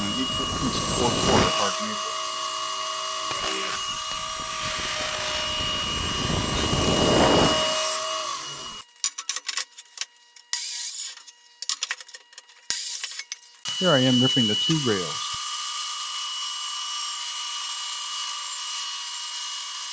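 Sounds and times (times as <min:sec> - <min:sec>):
power saw cutting wood: 0:00.0 - 0:08.8, 0:13.7 - 0:16.6.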